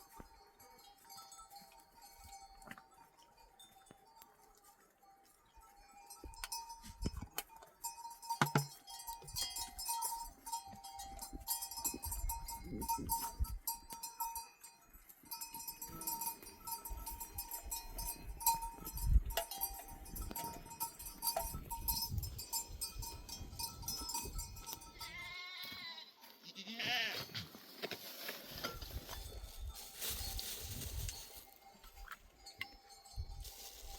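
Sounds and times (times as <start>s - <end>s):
animal bells clinking: 0.0s - 33.9s
small knocks: 8.4s - 8.7s
sheep bleating: 25.0s - 27.3s.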